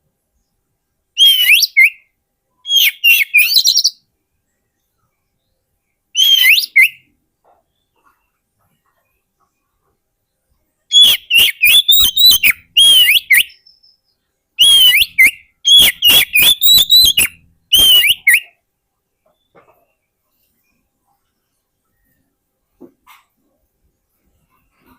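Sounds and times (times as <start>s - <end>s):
bird singing whistled notes: 1.2s - 4.0s, 6.1s - 7.1s, 10.9s - 18.6s.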